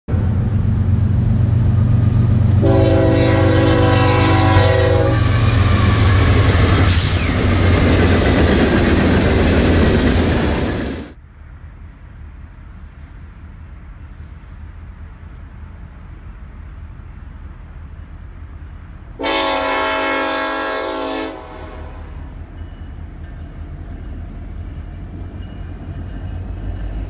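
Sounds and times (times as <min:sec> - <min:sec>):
diesel locomotive engines: 0:00.1 - 0:27.0
wheels rumbling on rail: 0:00.1 - 0:27.0
locomotive air horn chord: 0:02.6 - 0:05.4, 0:19.2 - 0:22.3.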